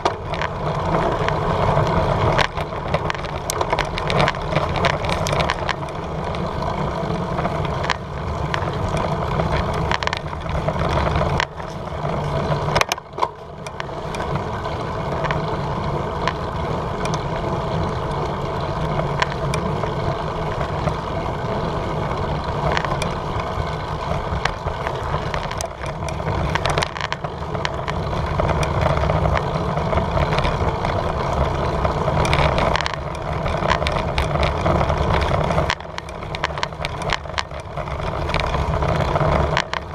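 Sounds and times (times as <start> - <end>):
wind rush while cycling: 0.0 - 39.9.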